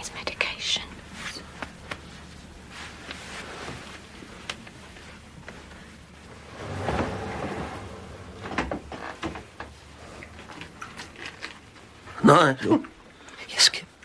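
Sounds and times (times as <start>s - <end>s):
door creaking: 6.3s - 9.5s.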